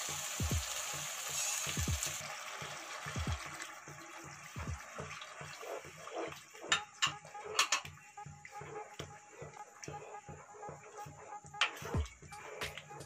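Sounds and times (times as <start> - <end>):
sauce sizzling in a wok: 0.0 - 6.7.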